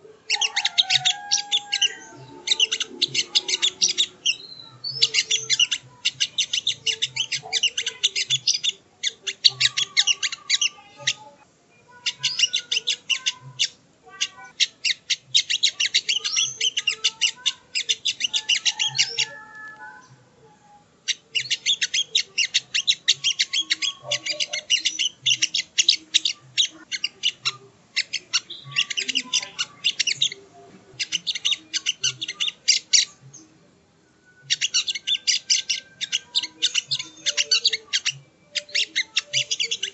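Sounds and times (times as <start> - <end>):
bird singing scratchy chatter: 0.0 - 39.9.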